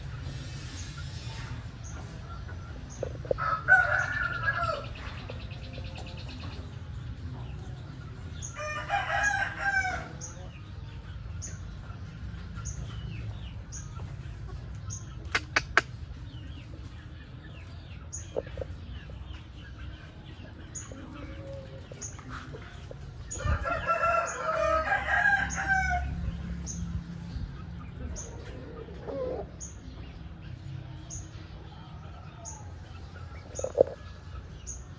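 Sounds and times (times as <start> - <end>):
rooster crowing: 3.4 - 5.0, 8.6 - 10.2, 23.4 - 26.2
sharp clicks: 15.3 - 15.9.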